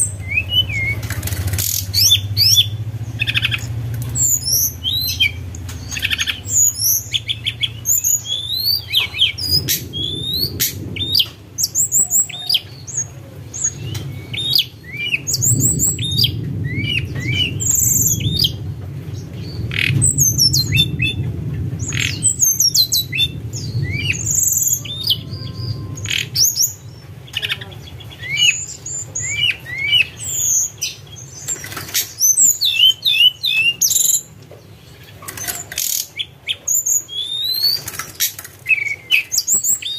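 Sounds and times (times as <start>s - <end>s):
songbird whistling song: 0.0s - 18.6s, 19.4s - 39.9s
steady low hum: 0.0s - 31.3s.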